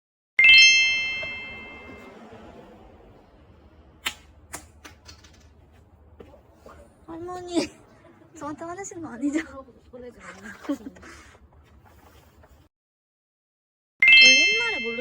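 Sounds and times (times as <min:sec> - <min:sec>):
small bell ringing: 0:00.4 - 0:02.1, 0:14.0 - 0:15.0.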